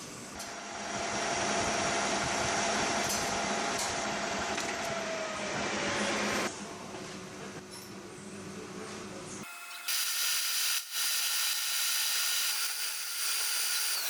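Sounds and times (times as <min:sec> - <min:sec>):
metal lathe cutting: 0:09.4 - 0:14.0.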